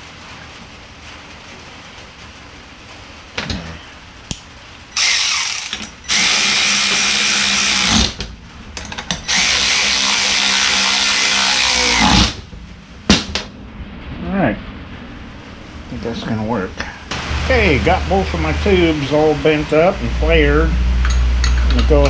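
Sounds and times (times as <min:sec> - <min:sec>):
power tool whining: 0:05.0 - 0:08.2, 0:09.2 - 0:12.4.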